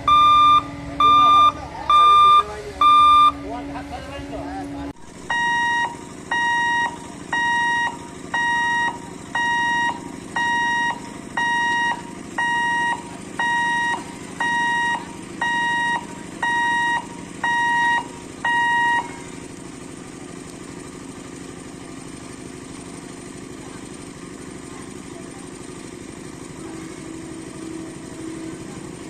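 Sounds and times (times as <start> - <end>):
electronic warning beeps: 0.0 - 3.4, 5.2 - 19.2.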